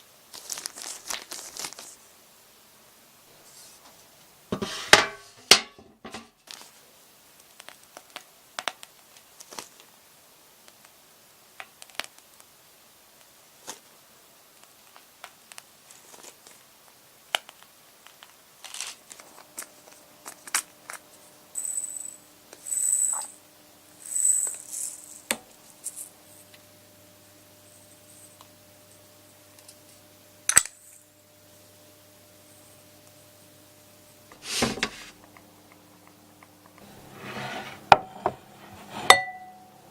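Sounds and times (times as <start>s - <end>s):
loud crinkling: 0.3s - 2.1s.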